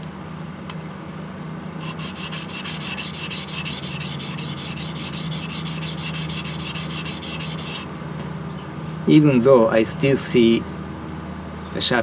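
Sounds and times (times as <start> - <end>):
blade scraping on whetstone: 1.8 - 7.9.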